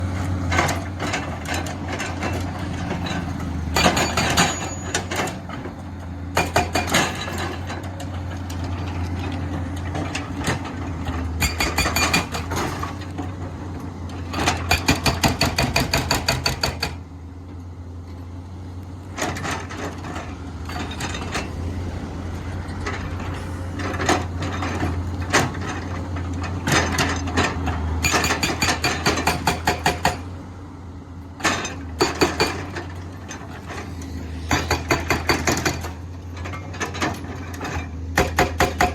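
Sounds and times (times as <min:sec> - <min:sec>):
excavator diesel engine running: 0:00.0 - 0:38.9
hydraulic breaker hammering: 0:14.5 - 0:17.0, 0:28.0 - 0:30.3, 0:38.2 - 0:38.9.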